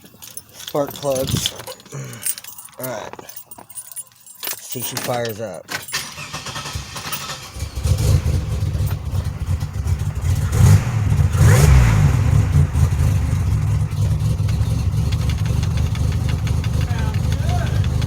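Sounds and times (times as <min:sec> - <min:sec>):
car engine starting and idling: 0:05.8 - 0:18.0.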